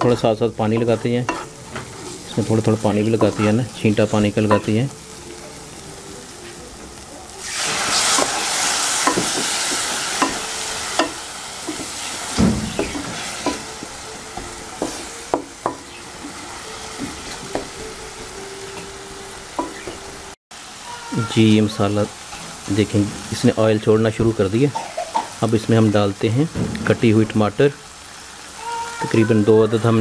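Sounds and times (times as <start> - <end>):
wooden spatula scraping a pan: 0.0 - 4.6
masala frying in hot oil: 0.0 - 30.0
water splashing into hot oil: 7.4 - 10.3.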